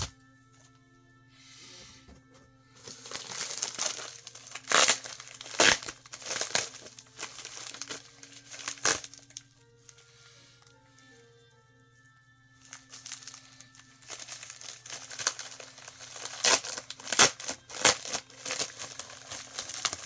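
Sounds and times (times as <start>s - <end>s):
plastic bags crinkling: 2.8s - 10.0s, 12.6s - 20.0s.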